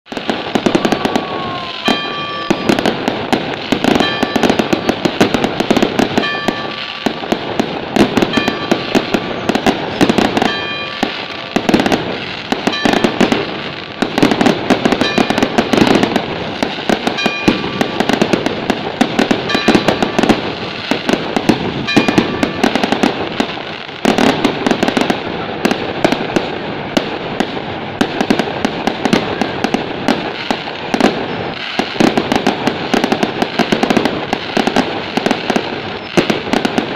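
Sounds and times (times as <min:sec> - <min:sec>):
fireworks bangs and crackling: 0:00.0 - 0:36.9
short high ringing tones: 0:01.8 - 0:02.9, 0:03.9 - 0:04.8, 0:06.2 - 0:07.2, 0:08.2 - 0:11.7, 0:12.4 - 0:14.0, 0:15.0 - 0:16.0, 0:17.0 - 0:18.2, 0:19.4 - 0:20.7, 0:21.8 - 0:23.0.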